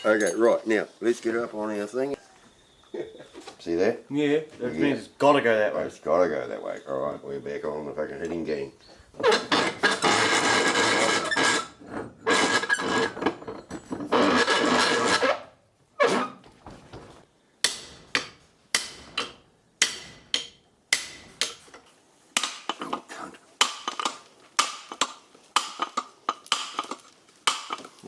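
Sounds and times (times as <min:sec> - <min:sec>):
rattling metalwork bursts: 0:09.2 - 0:15.4.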